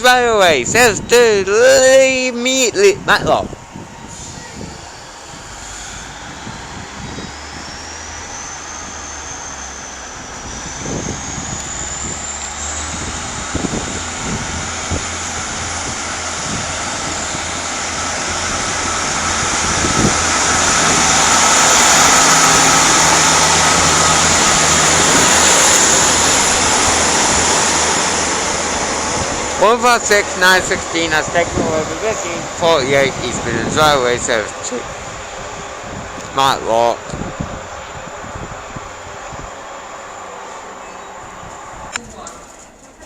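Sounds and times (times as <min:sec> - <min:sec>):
high whine rising in pitch: 0:00.0 - 0:42.0
diesel train engine accelerating: 0:00.0 - 0:43.0.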